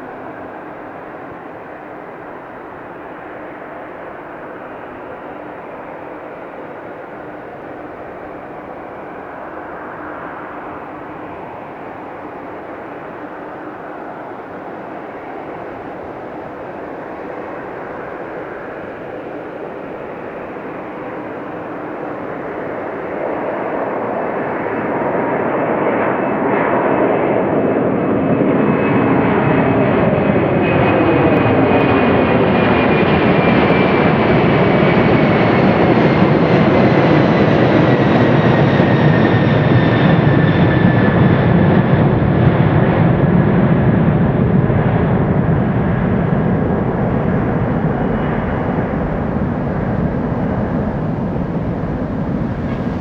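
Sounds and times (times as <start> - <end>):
jet airliner passing at takeoff: 0.0 - 53.0.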